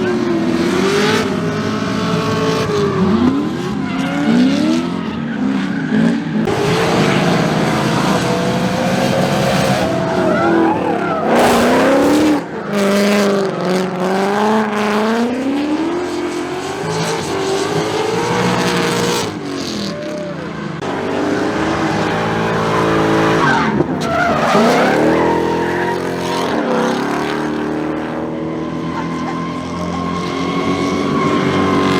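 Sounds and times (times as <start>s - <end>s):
tire squeal: 0.0s - 14.7s, 15.4s - 28.0s, 28.9s - 31.9s
car engine revving: 0.0s - 31.9s.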